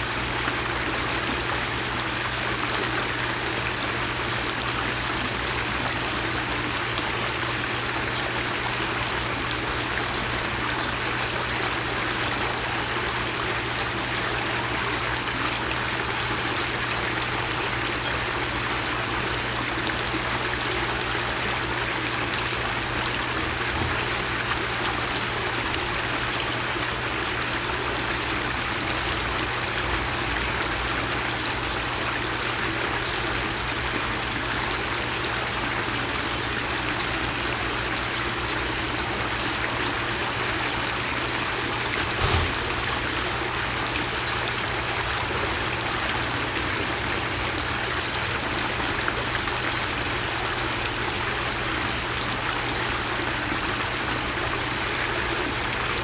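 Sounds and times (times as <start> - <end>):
low thump: 42.1 - 42.9.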